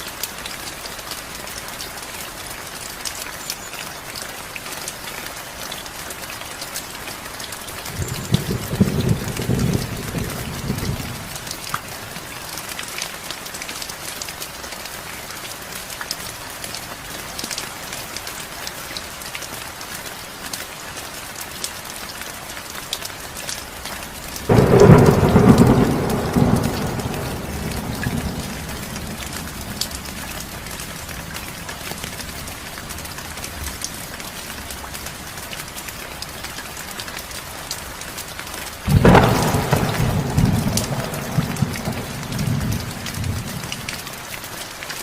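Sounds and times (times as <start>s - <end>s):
heavy rain: 0.0s - 45.0s
rain drops ticking: 0.0s - 45.0s
thunder clap rumbling: 7.9s - 11.6s, 24.5s - 31.2s, 38.9s - 44.0s.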